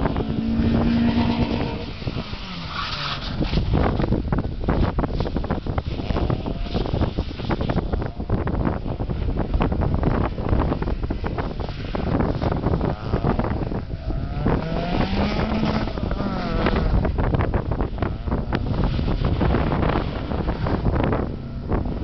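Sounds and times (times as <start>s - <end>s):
car engine revving: 0.0s - 4.0s, 12.4s - 17.2s
wind buffeting microphone: 0.0s - 22.0s.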